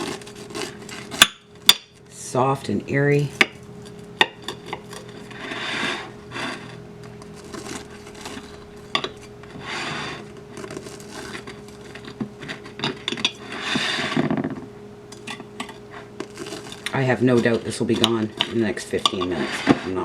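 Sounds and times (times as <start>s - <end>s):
scraping rubbing strokes: 0.0s - 1.2s, 3.9s - 12.7s, 13.4s - 14.3s, 15.8s - 20.0s.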